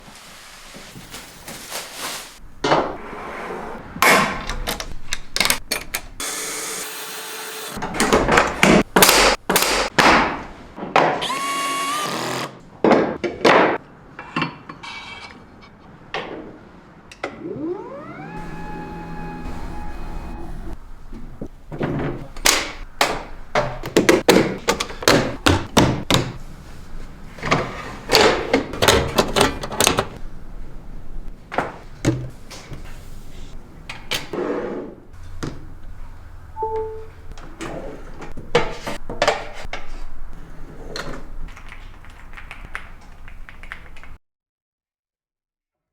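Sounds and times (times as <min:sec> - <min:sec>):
short beep: 0:36.6 - 0:37.2.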